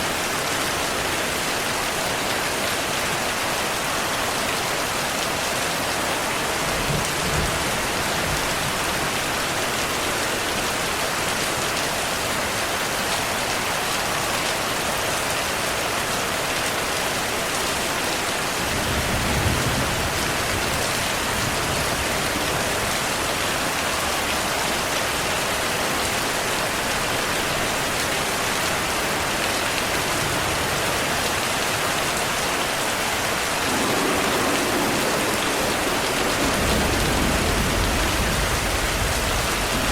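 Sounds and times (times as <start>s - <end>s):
heavy rain hissing: 17.9s - 39.9s
distant thunder rumbles: 33.4s - 39.9s.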